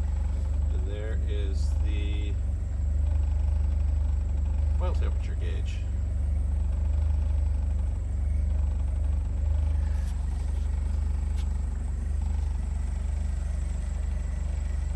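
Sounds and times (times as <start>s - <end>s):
car engine idling: 0.0s - 14.9s.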